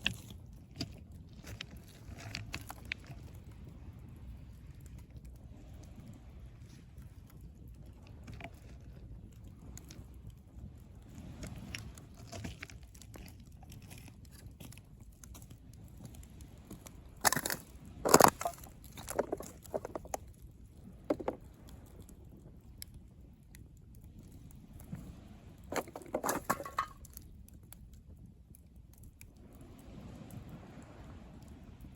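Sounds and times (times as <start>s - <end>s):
campfire crackling: 0.0s - 31.9s
low steady rumble: 15.4s - 27.2s.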